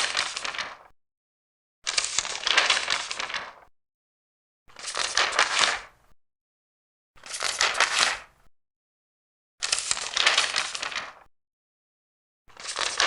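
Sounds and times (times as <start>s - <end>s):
paper pages turning: 0.0s - 0.9s, 1.9s - 3.6s, 4.7s - 5.9s, 7.2s - 8.3s, 9.6s - 11.3s, 12.5s - 13.0s.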